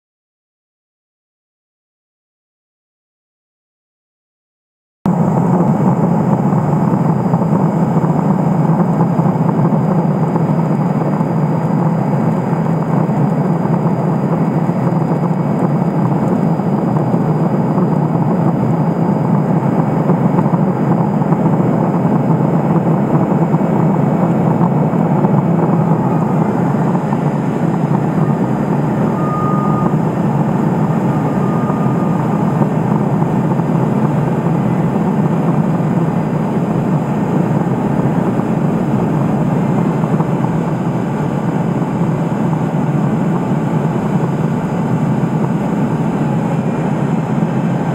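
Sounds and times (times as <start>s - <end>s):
aircraft engine and propeller drone: 5.1s - 47.9s
high beep: 25.7s - 26.9s, 28.1s - 32.6s.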